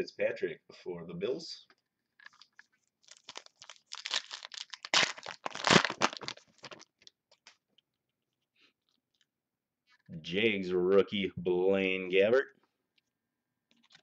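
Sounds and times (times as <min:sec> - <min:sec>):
wrapper crinkling and tearing: 0:02.2 - 0:07.6.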